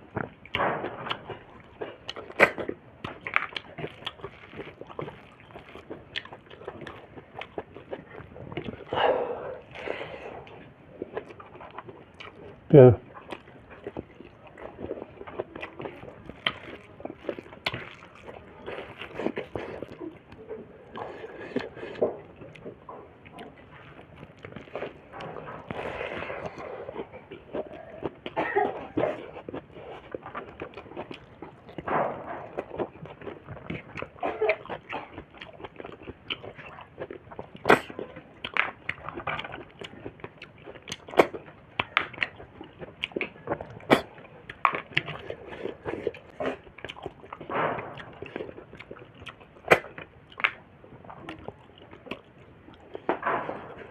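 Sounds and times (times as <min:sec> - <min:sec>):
person chewing and smacking: 0:00.0 - 0:53.9.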